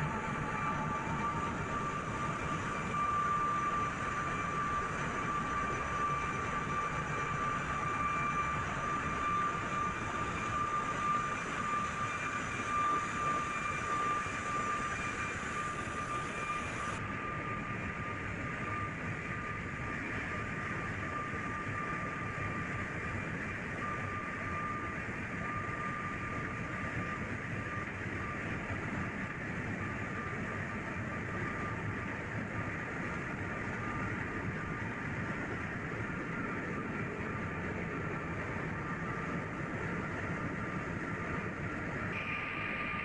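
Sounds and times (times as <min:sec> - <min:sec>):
high steady whine: 0:00.0 - 0:43.0.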